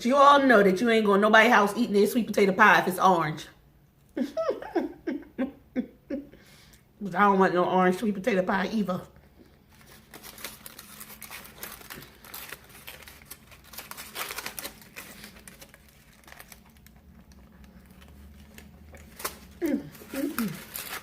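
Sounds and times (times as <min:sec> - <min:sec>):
wrapping paper crinkling: 0:09.5 - 0:21.0.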